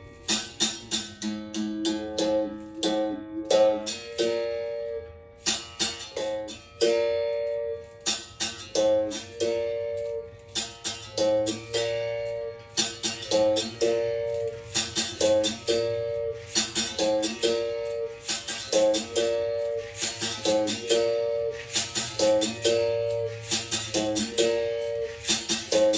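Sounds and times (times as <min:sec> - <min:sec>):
berimbau playing: 0:00.0 - 0:25.9.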